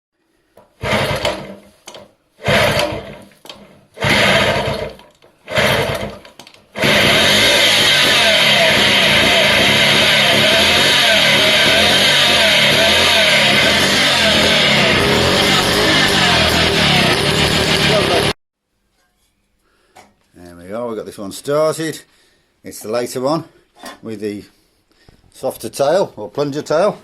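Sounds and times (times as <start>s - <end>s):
two-stroke engine running: 0.8s - 1.6s, 2.4s - 18.4s.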